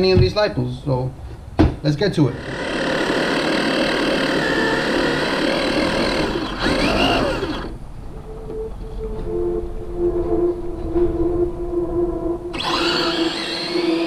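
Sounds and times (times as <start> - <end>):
rc car electric motor whirring: 2.3 - 7.8, 12.6 - 14.0.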